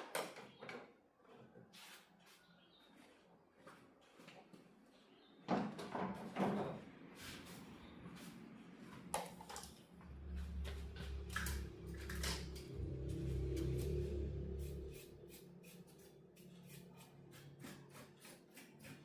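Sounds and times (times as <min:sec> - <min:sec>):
steady low hum: 0:10.0 - 0:16.9.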